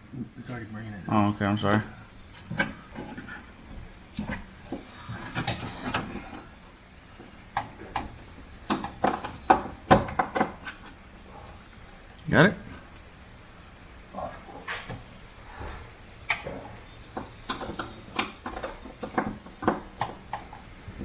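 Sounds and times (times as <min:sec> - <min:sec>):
clicks and knocks of car trim parts: 0:02.4 - 0:06.4, 0:07.2 - 0:11.0, 0:16.3 - 0:21.0.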